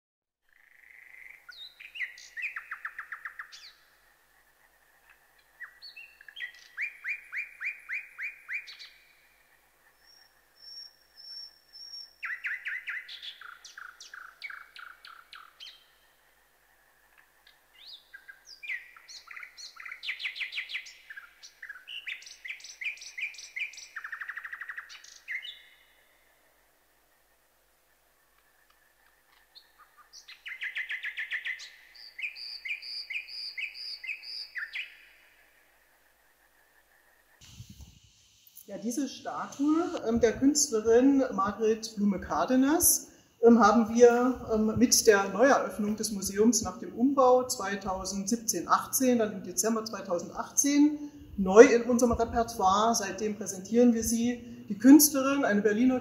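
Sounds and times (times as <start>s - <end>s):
songbird singing: 0.5s - 56.0s.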